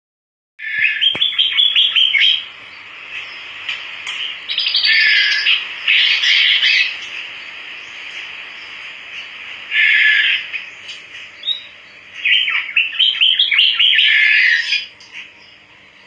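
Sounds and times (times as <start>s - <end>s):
buzzy bird chattering: 0.6s - 2.5s, 4.2s - 7.2s, 9.7s - 14.9s
bird high notes: 4.2s - 7.2s.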